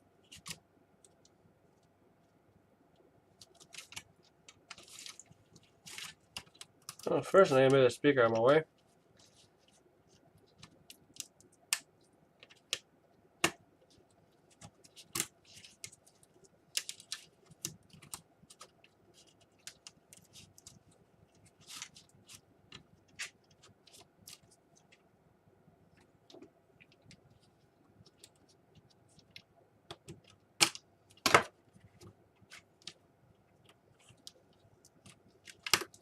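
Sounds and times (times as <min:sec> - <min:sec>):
clicks of plastic laptop parts: 0:34.9 - 0:36.0.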